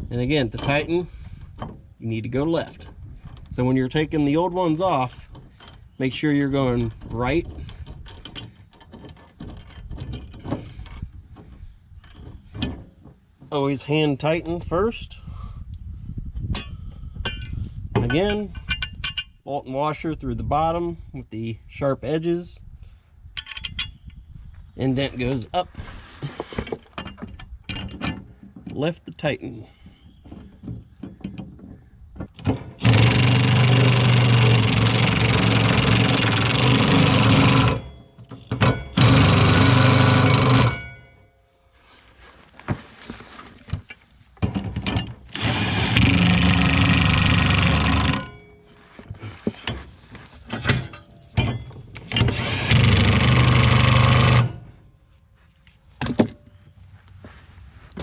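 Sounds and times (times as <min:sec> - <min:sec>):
cordless impact wrench running: 0:32.8 - 0:37.8, 0:38.9 - 0:40.8, 0:45.3 - 0:48.3, 0:52.2 - 0:54.6.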